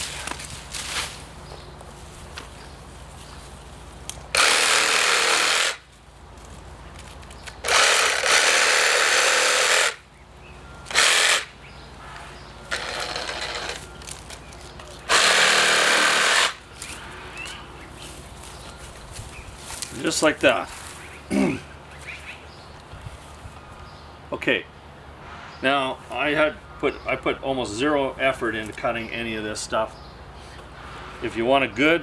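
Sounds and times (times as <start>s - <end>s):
reciprocating saw cutting branches: 4.0s - 6.0s, 7.4s - 10.1s, 10.8s - 14.0s, 15.0s - 18.2s.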